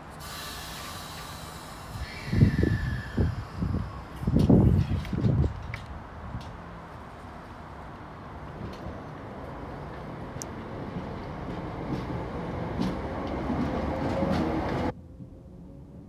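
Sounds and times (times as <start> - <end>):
train wheels rumbling on rail: 0.0 - 16.0
train whine rising in pitch: 0.3 - 4.4, 10.7 - 16.0.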